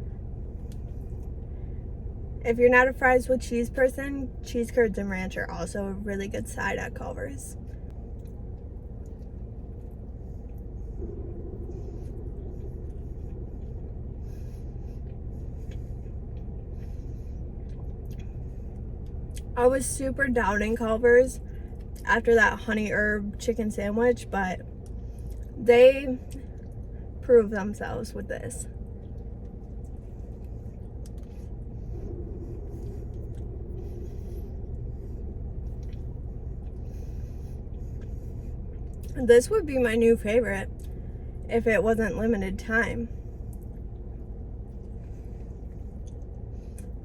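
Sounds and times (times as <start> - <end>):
car engine idling: 0.0 - 47.0
faint steady hum: 0.0 - 47.0
eating clicks and rustles: 28.8 - 39.2.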